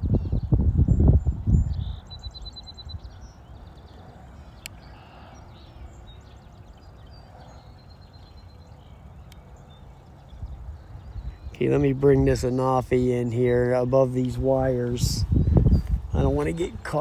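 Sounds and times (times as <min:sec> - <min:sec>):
wind rumble on microphone: 0:00.0 - 0:04.6, 0:09.6 - 0:17.0
small birds chirping: 0:00.0 - 0:17.0
bird trill: 0:00.1 - 0:11.6.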